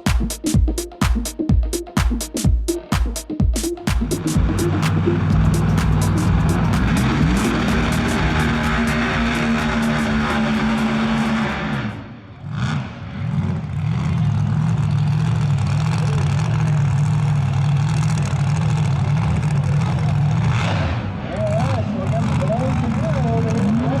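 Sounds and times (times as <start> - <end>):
music playing: 0.0 - 12.0
drag car engine revving: 4.0 - 24.0.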